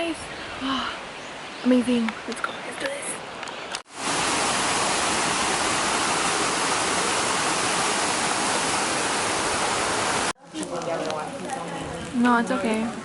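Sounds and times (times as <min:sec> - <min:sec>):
waterfall and stream rushing: 0:02.9 - 0:10.4.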